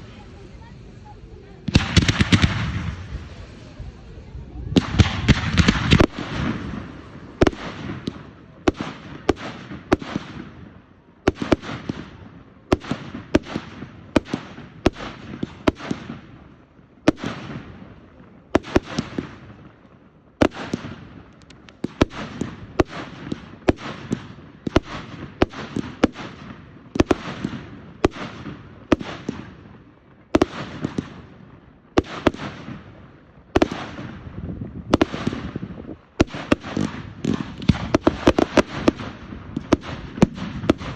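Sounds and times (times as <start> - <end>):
fireworks banging: 0.0 - 40.9.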